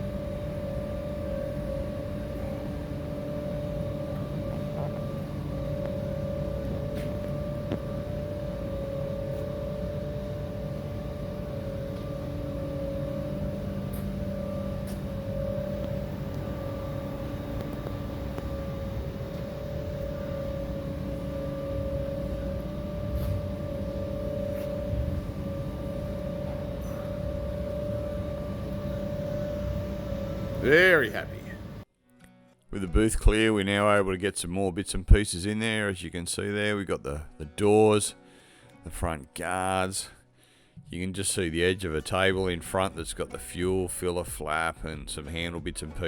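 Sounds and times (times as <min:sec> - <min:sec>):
machine hum with whine: 0:00.0 - 0:31.9.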